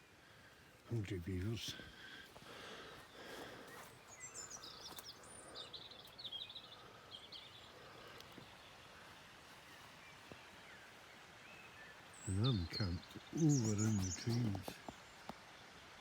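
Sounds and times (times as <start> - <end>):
steady background hiss: 0.0 - 16.0
small bird chirping: 11.6 - 15.3.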